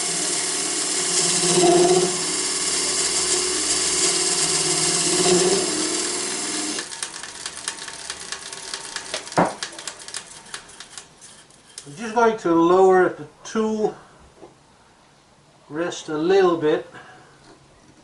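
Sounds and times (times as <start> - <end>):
wood lathe hum and hiss: 0.0 - 11.8
tool cutting spinning wood: 0.0 - 11.9.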